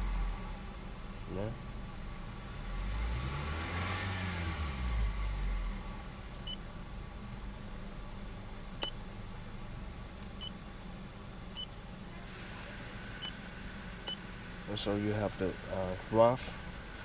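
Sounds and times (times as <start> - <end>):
car engine idling: 6.0 - 17.0.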